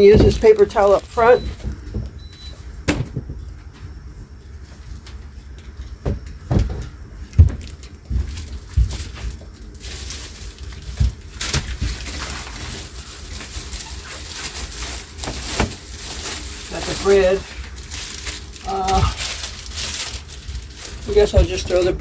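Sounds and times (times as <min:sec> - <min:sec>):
dull thumps and knocks: 0:00.0 - 0:04.0, 0:06.0 - 0:09.5, 0:21.1 - 0:22.0.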